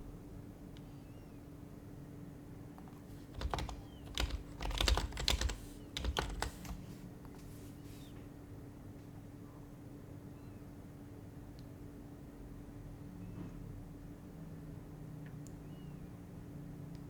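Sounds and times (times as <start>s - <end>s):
keyboard typing: 2.8s - 7.0s.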